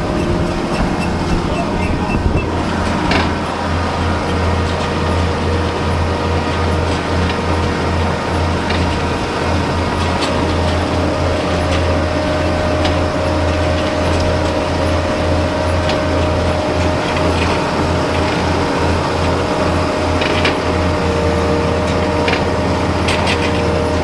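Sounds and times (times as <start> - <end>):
mechanical whine: 0.0 - 6.2
machinery clicks and rattles: 0.0 - 23.8
engine drone: 0.0 - 24.0.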